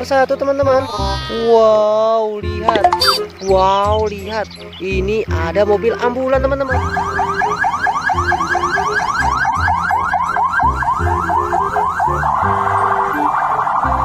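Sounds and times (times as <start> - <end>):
toy ambulance electronic siren: 6.8 - 14.0.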